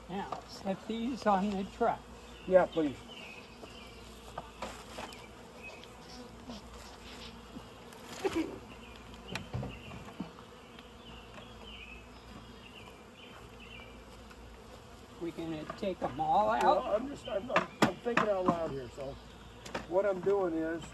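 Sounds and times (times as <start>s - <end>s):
bees buzzing: 0.0s - 20.9s
hive frames clicking and knocking: 0.2s - 1.7s, 3.6s - 12.5s, 15.6s - 20.9s.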